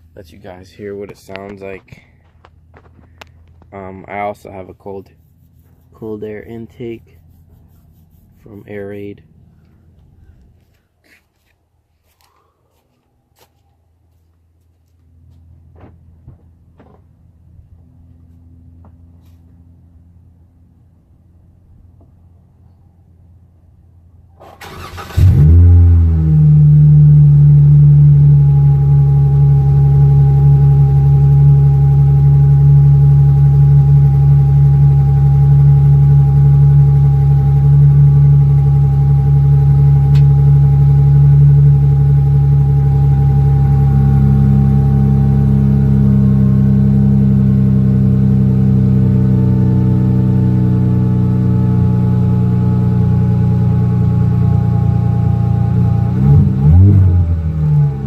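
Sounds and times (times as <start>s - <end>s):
car engine idling: 0.0s - 10.5s, 23.2s - 58.0s.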